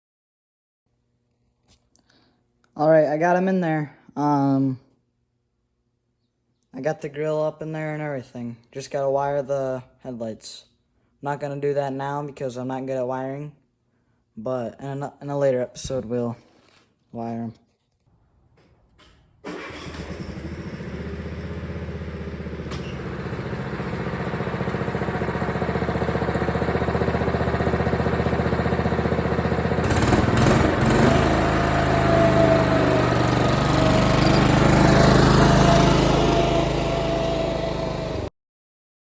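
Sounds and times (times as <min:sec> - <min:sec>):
lawn tractor engine running: 0:19.5 - 0:38.3.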